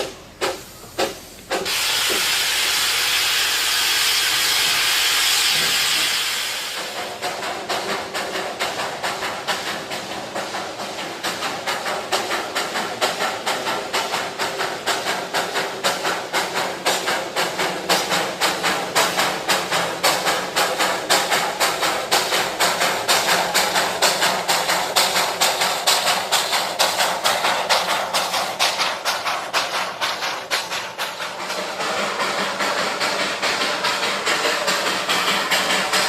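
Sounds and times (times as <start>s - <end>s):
small train running: 0.0s - 36.0s
steady hiss: 0.1s - 7.5s.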